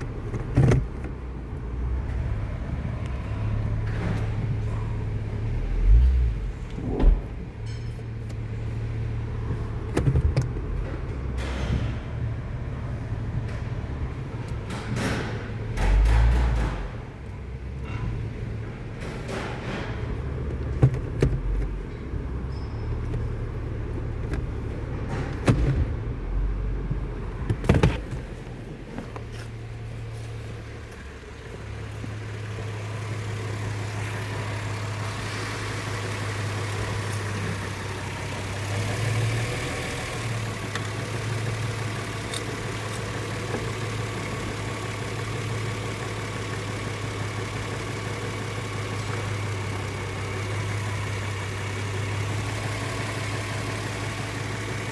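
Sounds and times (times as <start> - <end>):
car engine idling: 0.0 - 54.9
sharp engine knocks: 14.5 - 17.2.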